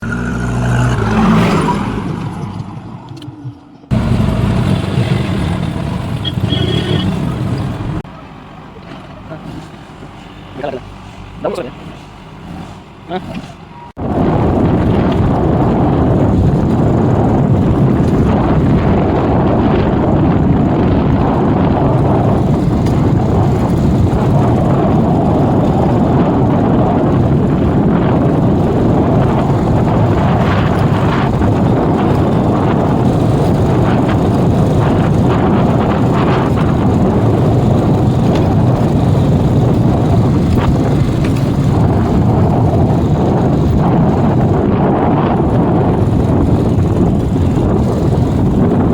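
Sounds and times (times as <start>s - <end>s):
diesel engine running: 0.0s - 8.5s, 9.2s - 48.9s.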